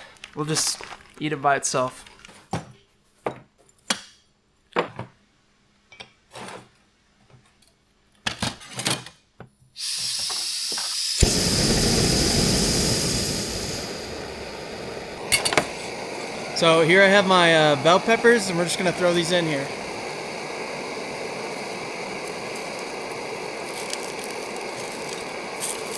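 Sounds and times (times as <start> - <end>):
hot pan hissing: 9.8 - 25.9
steak sizzling in a pan: 9.8 - 25.9.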